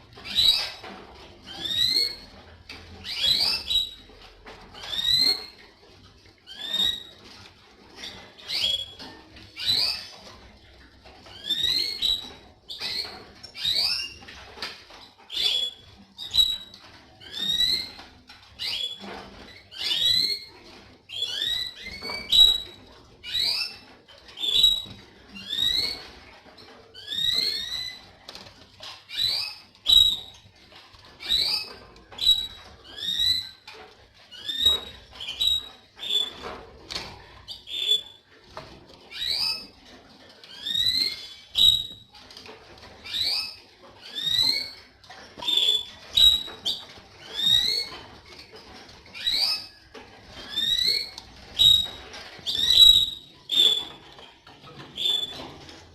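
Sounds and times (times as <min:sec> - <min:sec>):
canary whistled call notes: 0:37.5 - 0:38.2, 0:40.5 - 0:42.1, 0:45.4 - 0:47.9, 0:50.4 - 0:54.0, 0:55.0 - 0:55.4.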